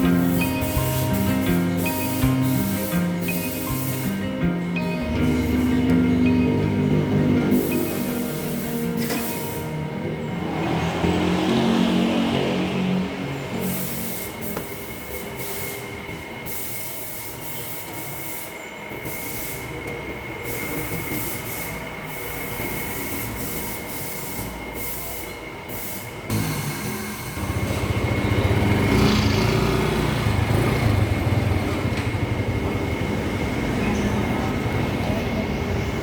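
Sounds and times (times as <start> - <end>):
motor scooter running: 0.0 - 14.8, 26.3 - 36.0.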